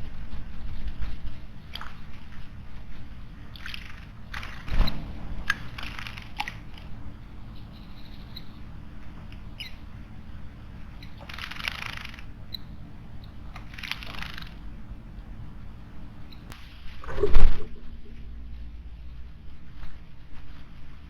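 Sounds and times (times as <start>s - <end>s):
small birds chirping: 3.2s - 16.6s.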